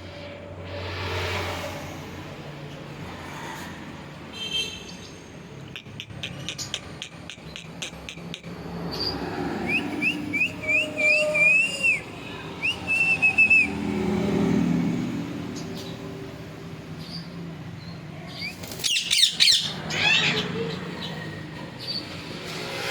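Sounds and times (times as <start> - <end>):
parrot clicks: 5.8 - 8.5
parrot whistling: 9.6 - 12.0, 12.6 - 13.7.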